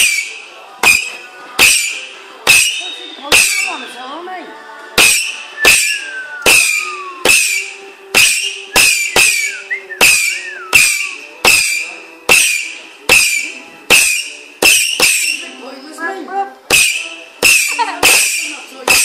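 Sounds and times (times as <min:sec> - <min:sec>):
firework whistles: 0:00.0 - 0:01.1, 0:05.1 - 0:15.4.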